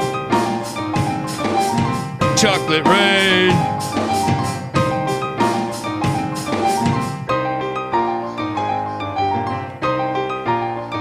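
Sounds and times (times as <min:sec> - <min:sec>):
piano chords: 0:00.0 - 0:11.0
drum-kit beat: 0:02.3 - 0:06.8.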